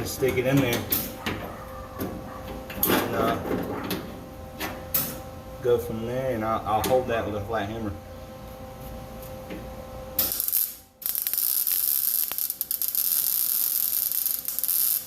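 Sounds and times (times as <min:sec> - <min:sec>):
low electrical hum: 0:00.0 - 0:15.0
welding arc crackling: 0:10.2 - 0:15.0.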